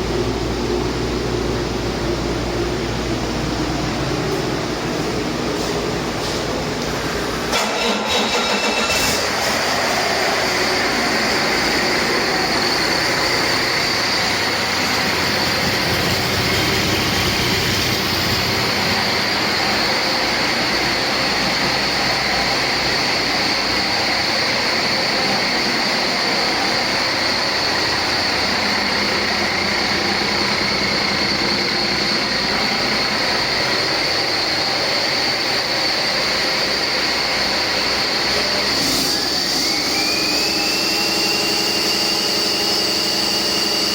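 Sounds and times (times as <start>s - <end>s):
diesel engine running: 0.0s - 43.9s
high whine: 8.4s - 43.9s.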